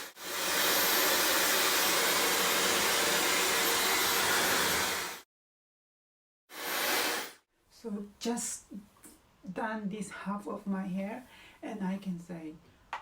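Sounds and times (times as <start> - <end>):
hair dryer running: 0.0 - 5.2, 6.6 - 7.4.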